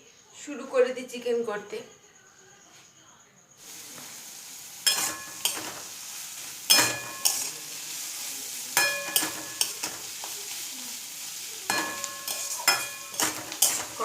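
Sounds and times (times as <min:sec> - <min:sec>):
onion sizzling in hot oil: 0:03.6 - 0:14.0
spatula clinking against pan: 0:04.8 - 0:05.8, 0:06.7 - 0:07.6, 0:08.8 - 0:10.1, 0:11.7 - 0:14.0.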